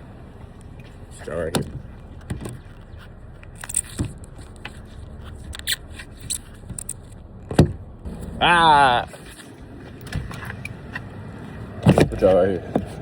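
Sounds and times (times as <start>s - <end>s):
clicks and scrapes of handling: 0.6s - 7.2s.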